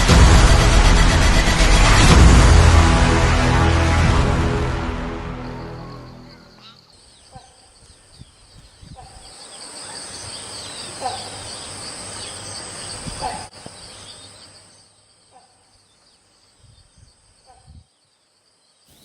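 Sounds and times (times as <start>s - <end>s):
insects buzzing: 5.3s - 19.0s
short insect calls: 5.8s - 19.0s.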